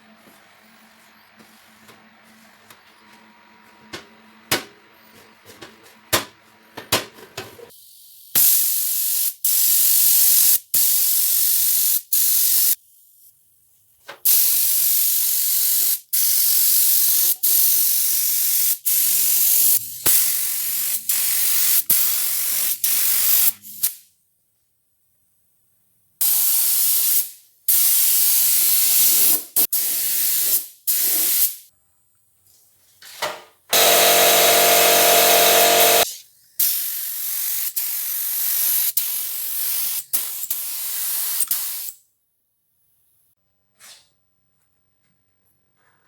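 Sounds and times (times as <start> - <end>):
pressurised spray hissing: 33.8 - 42.0.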